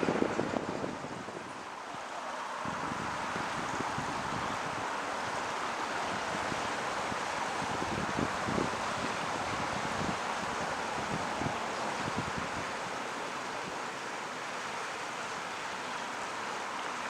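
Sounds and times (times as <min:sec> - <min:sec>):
wind buffeting microphone: 0:00.0 - 0:01.8, 0:02.6 - 0:12.9.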